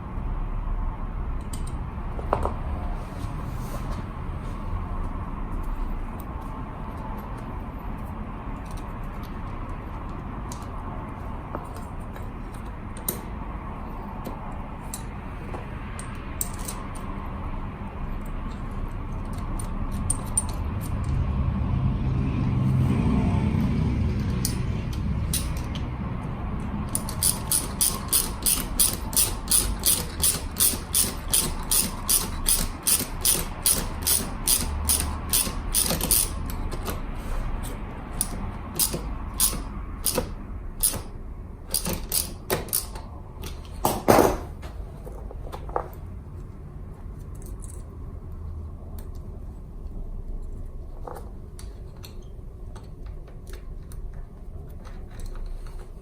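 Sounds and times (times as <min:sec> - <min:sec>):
fast mechanical clicking: 0:26.6 - 0:43.8.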